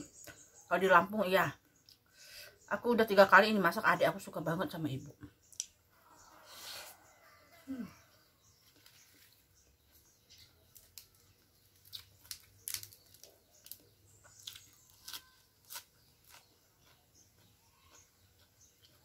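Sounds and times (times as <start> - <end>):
crunchy chewing of lettuce: 8.6 - 19.0.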